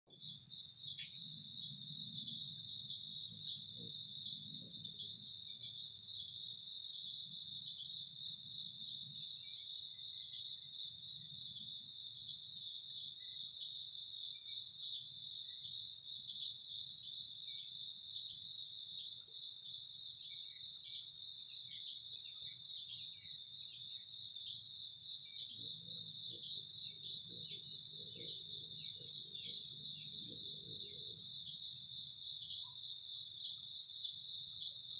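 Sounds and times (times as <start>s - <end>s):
insects trilling: 0.1s - 34.9s.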